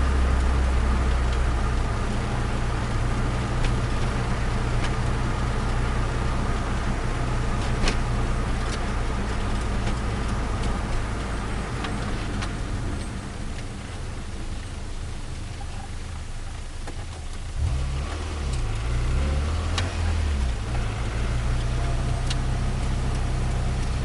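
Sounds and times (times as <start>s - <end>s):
car engine idling: 0.0s - 17.7s, 19.8s - 24.0s
light ticks: 21.5s - 24.0s.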